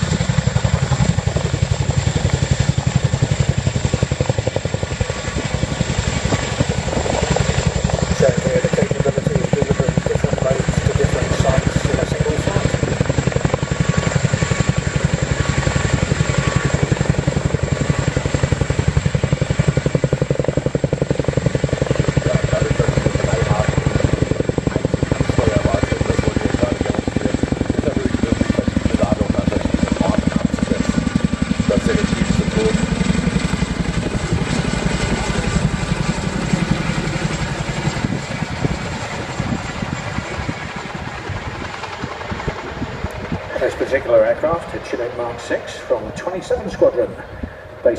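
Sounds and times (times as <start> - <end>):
helicopter rotors thudding: 0.0 - 47.9.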